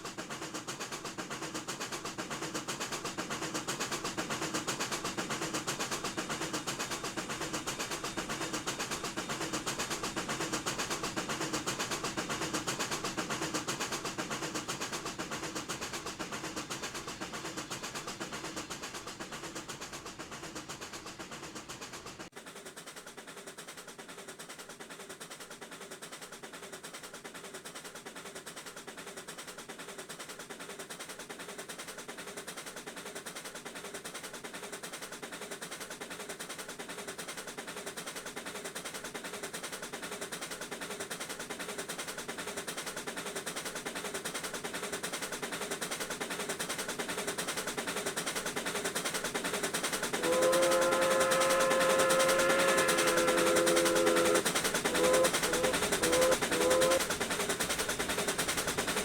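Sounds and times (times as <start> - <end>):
steam locomotive exhaust chuffing: 0.0 - 59.0
steam whistle blowing: 50.2 - 57.0.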